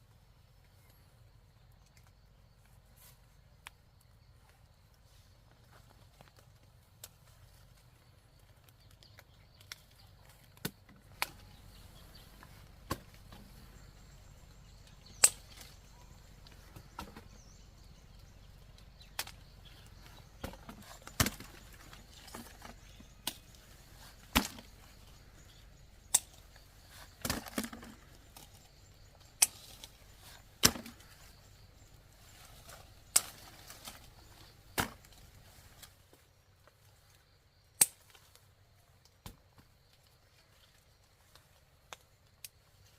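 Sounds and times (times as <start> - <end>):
blade chopping into wood: 30.6 - 31.0.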